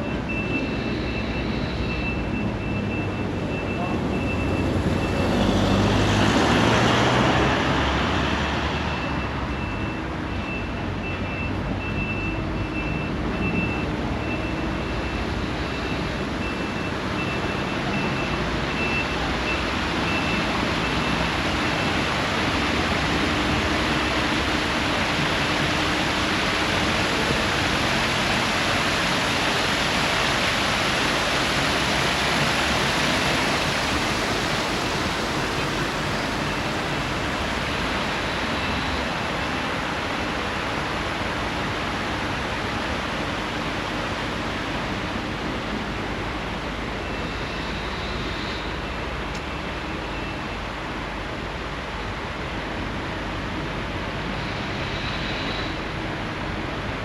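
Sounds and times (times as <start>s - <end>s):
faint high beep: 0.0s - 5.3s, 8.9s - 21.2s
steady rush of road noise: 0.0s - 57.0s.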